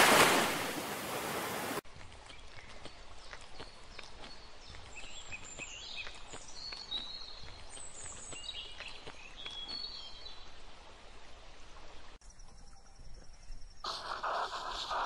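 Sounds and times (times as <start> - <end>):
small birds chirping: 2.0 - 11.5.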